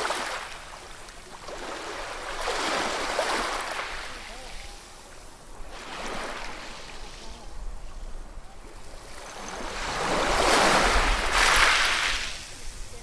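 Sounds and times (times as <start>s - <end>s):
ocean waves washing in: 8.8s - 13.0s.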